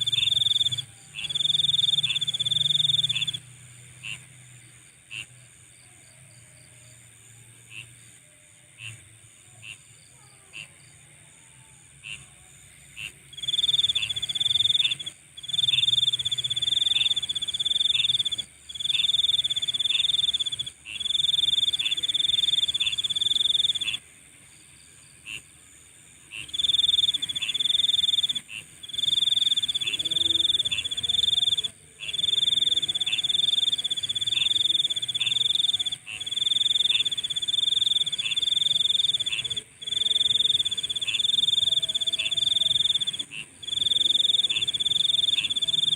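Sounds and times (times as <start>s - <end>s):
short insect chirps: 0.0s - 4.2s, 13.0s - 25.5s, 26.3s - 45.9s
insect high-pitched trill: 0.0s - 4.3s, 7.6s - 45.9s
steady insect buzz: 0.0s - 45.9s.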